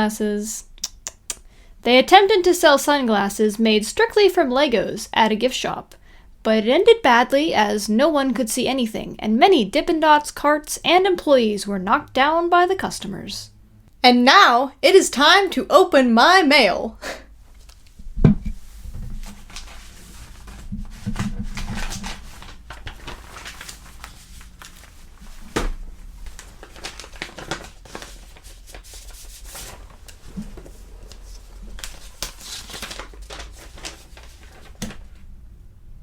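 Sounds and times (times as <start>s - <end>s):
paper rustling: 17.5s - 35.2s
envelopes tearing: 21.2s - 35.0s.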